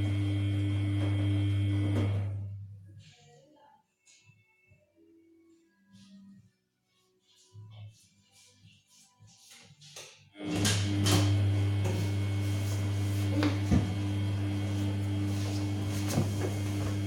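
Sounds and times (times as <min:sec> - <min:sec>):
washing machine electric hum: 0:00.0 - 0:02.9, 0:10.4 - 0:17.0.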